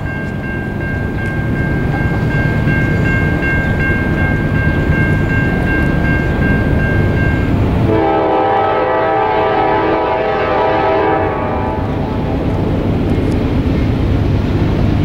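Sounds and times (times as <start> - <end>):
high-pitched ringing tone: 0.0 - 7.6
freight train rumble: 0.0 - 15.0.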